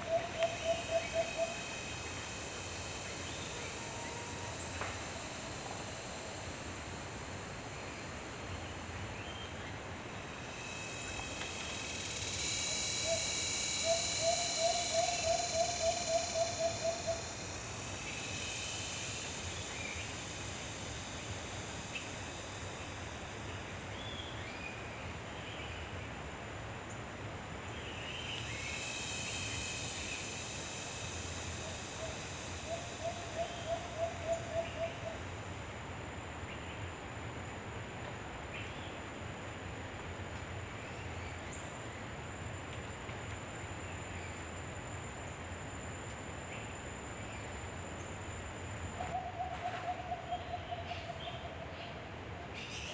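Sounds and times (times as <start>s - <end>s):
bird hooting: 0.0s - 1.9s, 12.6s - 17.4s, 31.6s - 35.2s, 48.9s - 52.9s
high buzzing insect chorus: 0.0s - 52.9s.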